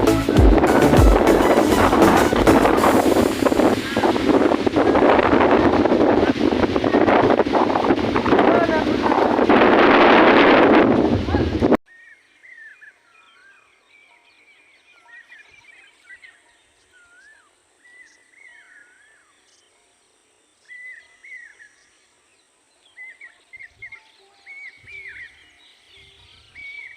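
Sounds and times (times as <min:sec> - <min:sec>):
birds chirping: 0:11.3 - 0:26.9
faint steady hiss: 0:11.9 - 0:26.9.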